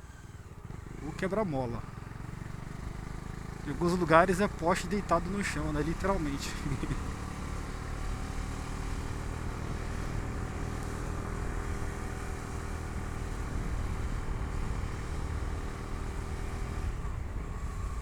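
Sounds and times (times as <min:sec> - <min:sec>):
motorcycle engine cruising: 0:00.0 - 0:18.0
riding wind noise: 0:09.4 - 0:18.0.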